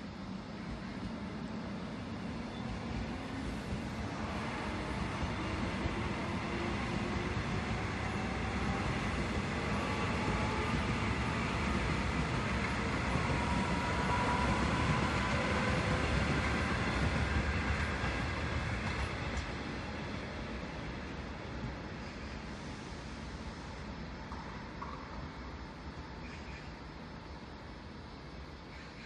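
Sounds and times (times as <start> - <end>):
electric train rumbling on rails: 0.0 - 29.0.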